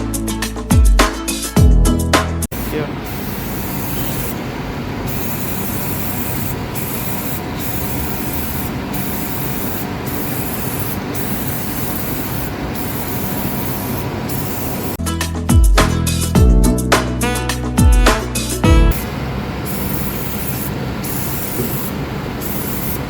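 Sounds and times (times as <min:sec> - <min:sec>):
aerosol can spraying: 0:02.5 - 0:04.4, 0:05.0 - 0:15.0, 0:18.9 - 0:23.0.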